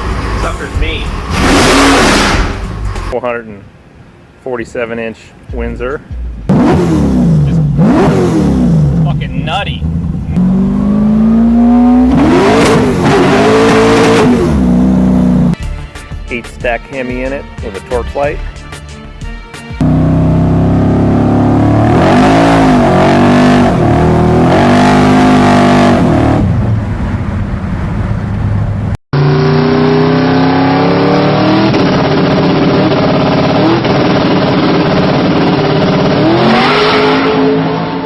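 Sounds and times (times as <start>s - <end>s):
engine revving: 0.0s - 3.2s, 6.4s - 15.6s, 19.8s - 27.2s, 29.1s - 38.0s
engine running with throttle blips: 5.5s - 15.6s, 19.8s - 38.0s.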